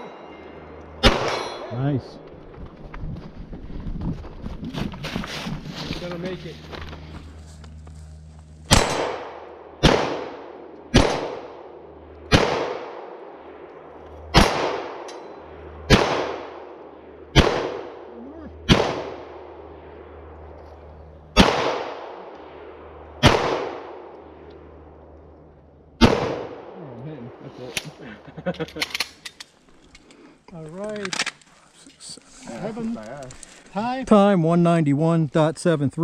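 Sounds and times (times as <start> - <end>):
echoing gunshots: 1.0 - 1.7, 8.7 - 20.5, 21.2 - 25.1, 26.0 - 26.8.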